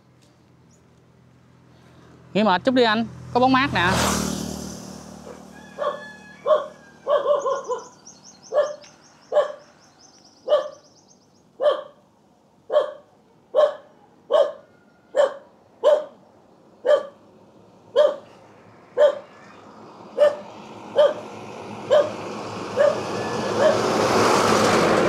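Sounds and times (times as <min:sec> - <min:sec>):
dog barking: 0:05.2 - 0:09.7, 0:10.4 - 0:10.8, 0:11.6 - 0:12.0, 0:12.7 - 0:16.2, 0:16.8 - 0:17.2, 0:17.9 - 0:18.4, 0:19.0 - 0:19.4, 0:20.1 - 0:21.3, 0:21.9 - 0:22.2, 0:22.8 - 0:23.9.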